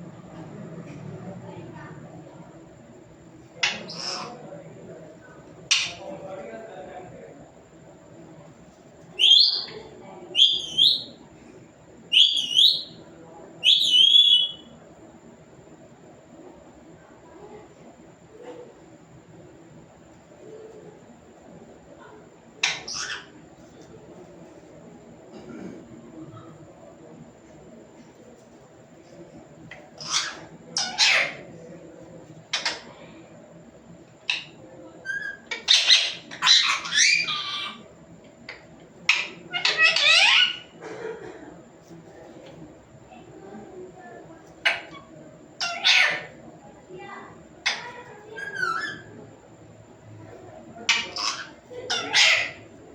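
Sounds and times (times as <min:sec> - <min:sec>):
parrot screeching: 0:03.6 - 0:04.4, 0:22.6 - 0:23.3, 0:30.0 - 0:31.4, 0:34.3 - 0:37.8, 0:39.1 - 0:40.8, 0:44.6 - 0:46.4, 0:47.6 - 0:49.1, 0:50.9 - 0:52.7
parrot whistled chirps: 0:10.4 - 0:11.2, 0:13.6 - 0:14.7.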